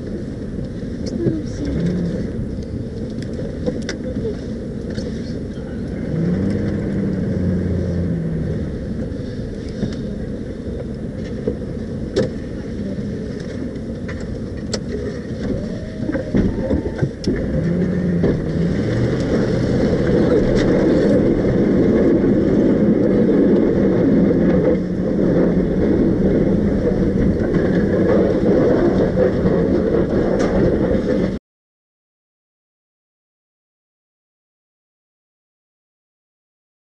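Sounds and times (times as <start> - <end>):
truck engine and road noise: 0.0 - 31.4.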